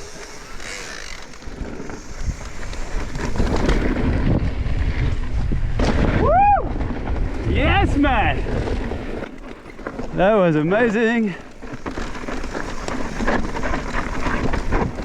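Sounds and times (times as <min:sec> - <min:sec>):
mountain bike rattling on dirt: 0:00.0 - 0:15.0
wind buffeting microphone: 0:00.8 - 0:09.3
person whooping: 0:06.2 - 0:06.7.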